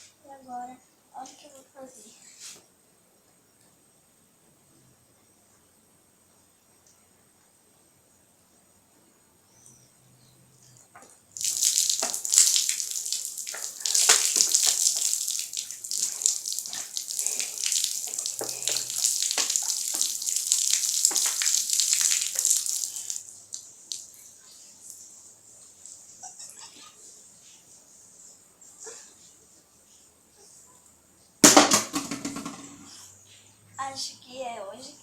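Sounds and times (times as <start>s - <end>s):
water pouring from a bottle: 11.4s - 24.2s.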